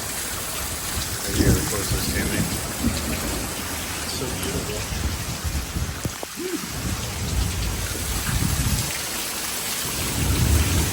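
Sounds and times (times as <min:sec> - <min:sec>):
heavy rain pouring: 0:00.0 - 0:10.9
low thunder rumbling: 0:00.7 - 0:09.2, 0:09.8 - 0:10.9.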